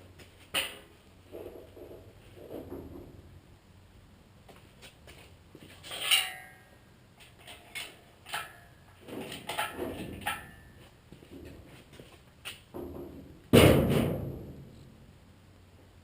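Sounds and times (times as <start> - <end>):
metal tools knocking and clinking: 5.8 - 10.8
ringing metal clank: 5.9 - 6.7, 7.7 - 8.8, 9.4 - 10.8.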